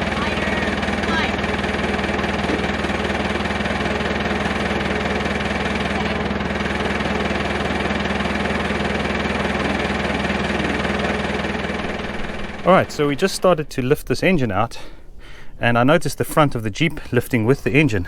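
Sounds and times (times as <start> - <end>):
tractor engine running: 0.0 - 15.5.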